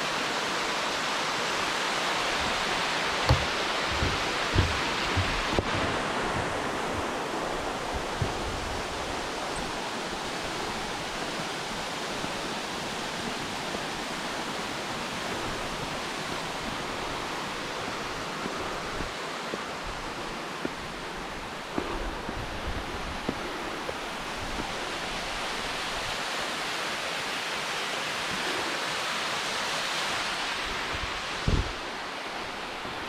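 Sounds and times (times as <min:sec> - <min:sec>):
waterfall rushing: 0:00.0 - 0:22.2, 0:23.0 - 0:33.0
soft low thumps: 0:02.4 - 0:05.7, 0:06.3 - 0:08.9.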